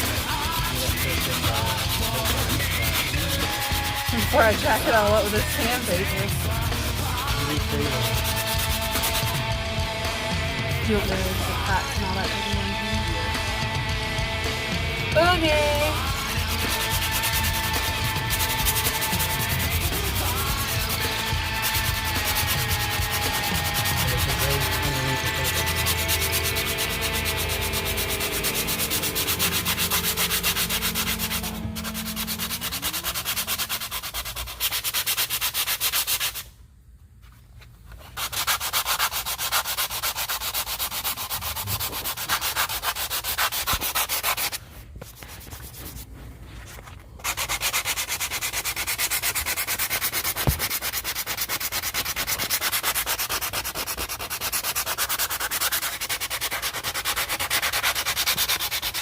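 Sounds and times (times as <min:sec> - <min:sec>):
power sander rasping on deck: 0:00.0 - 0:36.4, 0:38.1 - 0:46.2, 0:47.2 - 0:59.0.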